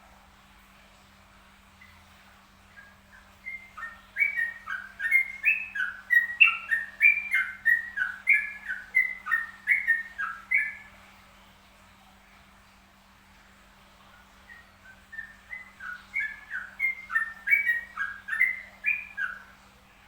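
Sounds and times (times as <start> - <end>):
bird singing whistled notes: 2.7 - 10.9, 14.4 - 19.6.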